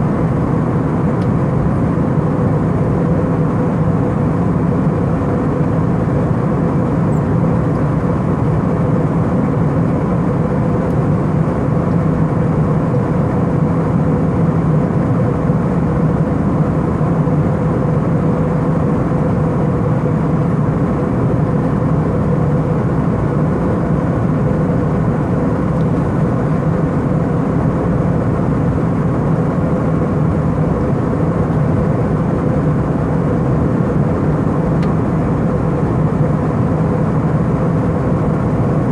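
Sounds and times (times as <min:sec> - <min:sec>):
airplane cabin engine drone: 0:00.0 - 0:38.9.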